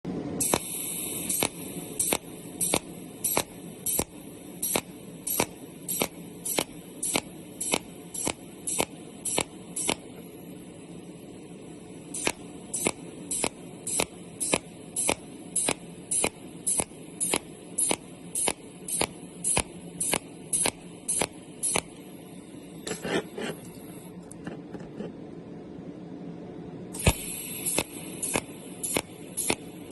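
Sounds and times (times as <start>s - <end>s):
steady machine hum: 0.1s - 29.9s
welding machine pulse snaps: 0.4s - 10.3s, 12.1s - 22.1s, 27.0s - 29.9s.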